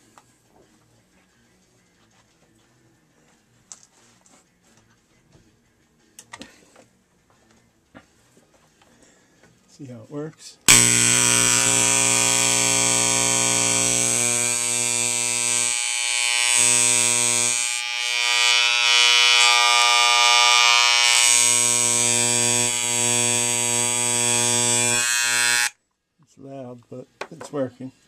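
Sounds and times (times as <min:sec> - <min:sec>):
electric hair clipper buzzing: 0:10.7 - 0:25.8.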